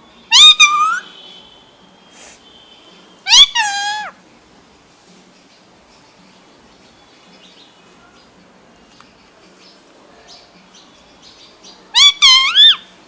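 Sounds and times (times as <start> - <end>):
parakeet chirps and calls: 0.2 - 4.2, 9.1 - 13.0.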